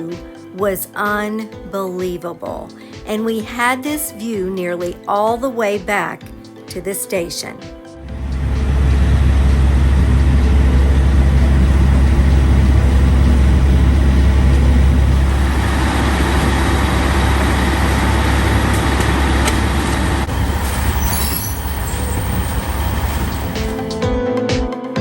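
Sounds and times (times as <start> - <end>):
train rumbling on rails: 8.0 - 23.9.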